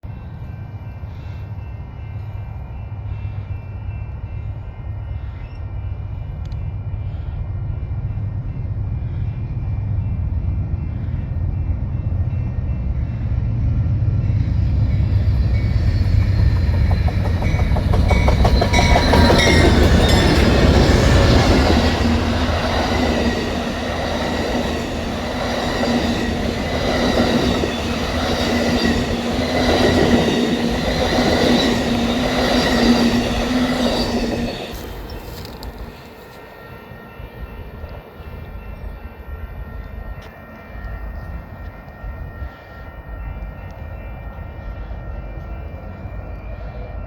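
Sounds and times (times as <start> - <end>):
diesel locomotive rumble: 6.3 - 36.1
steady high tone: 7.8 - 47.0
train wheels clattering over joints: 15.7 - 36.2.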